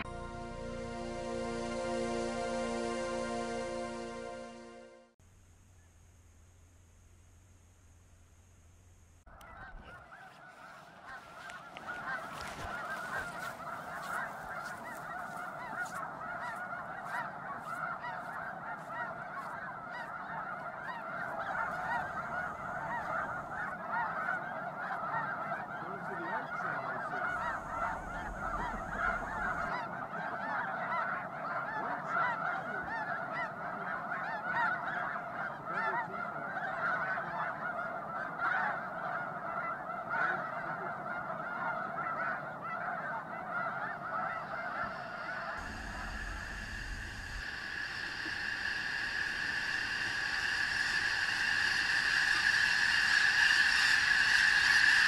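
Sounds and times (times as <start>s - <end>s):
flock of geese honking: 0.0s - 5.2s, 9.3s - 55.0s.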